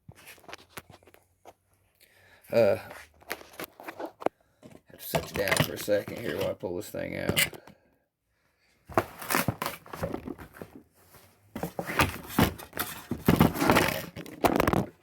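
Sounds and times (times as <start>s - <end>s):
knocks and scrapes: 3.0s - 7.7s, 8.9s - 15.0s
packaging rustling and crinkling: 8.9s - 15.0s.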